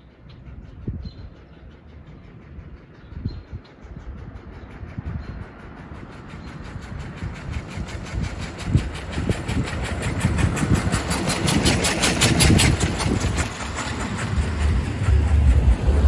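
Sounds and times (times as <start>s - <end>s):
single-cylinder engine running: 7.0s - 16.0s
deep low rumble: 12.2s - 16.0s.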